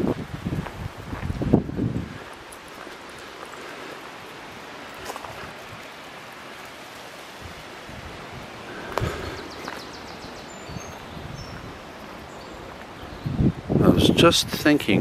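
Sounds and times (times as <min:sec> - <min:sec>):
stream water flowing: 0:02.4 - 0:13.0.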